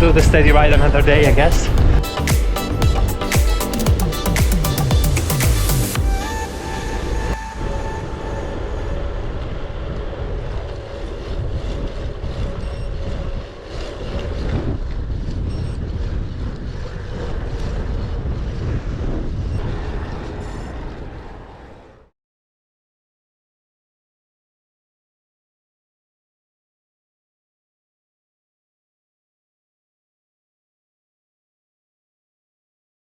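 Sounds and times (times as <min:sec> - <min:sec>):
wind buffeting microphone: 0:00.0 - 0:04.2, 0:06.1 - 0:22.1.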